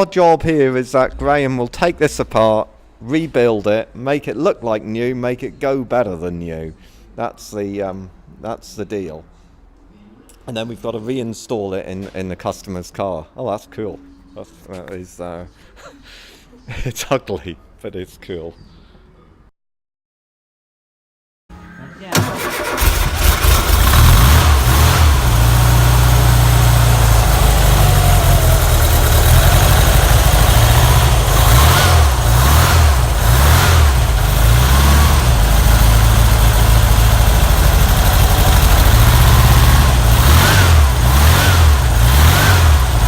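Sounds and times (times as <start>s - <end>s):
car engine running and revving: 22.8s - 43.0s.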